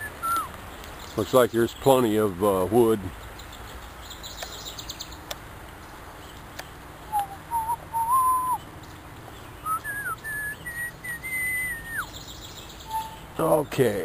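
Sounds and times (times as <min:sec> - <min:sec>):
person whistling a tune: 0:07.1 - 0:08.6, 0:09.7 - 0:12.1, 0:12.9 - 0:13.2.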